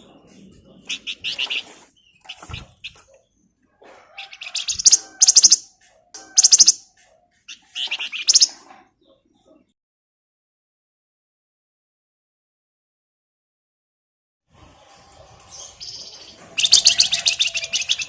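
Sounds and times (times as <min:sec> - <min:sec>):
bird singing rattling trills: 0:04.2 - 0:08.6, 0:15.5 - 0:18.0.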